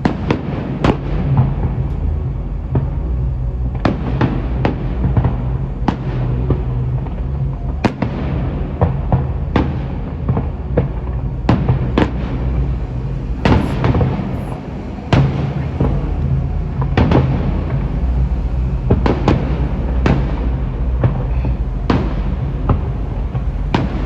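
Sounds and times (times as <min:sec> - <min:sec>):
low rumble: 0:00.0 - 0:24.0.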